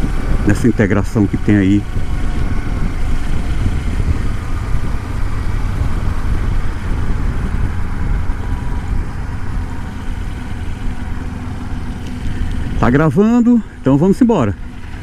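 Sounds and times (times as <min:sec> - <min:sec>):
motorcycle engine running: 0:00.0 - 0:15.0
traffic noise: 0:00.0 - 0:15.0.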